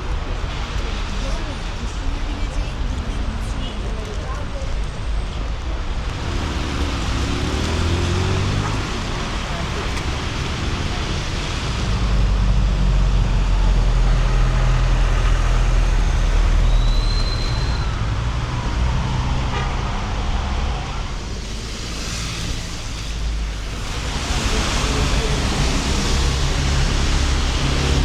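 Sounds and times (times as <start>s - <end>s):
passing vehicles engine rumble: 0.0s - 28.0s
rain: 0.0s - 28.0s
tyre hiss on wet road: 21.2s - 28.0s.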